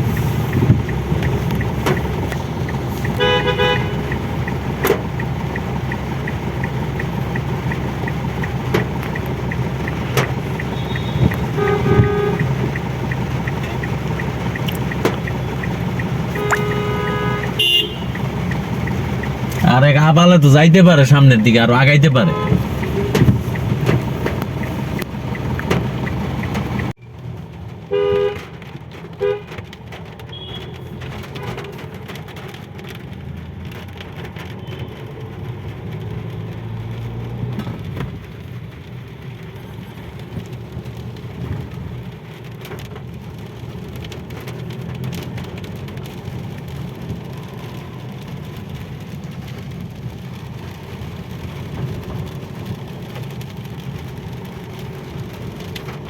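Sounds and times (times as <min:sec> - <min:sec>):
vehicle rumble in traffic: 0:00.0 - 0:56.0
car horn tooting: 0:03.1 - 0:04.2, 0:10.1 - 0:12.9, 0:16.3 - 0:19.0, 0:21.3 - 0:23.5, 0:27.9 - 0:28.5, 0:29.2 - 0:29.6, 0:30.3 - 0:31.9.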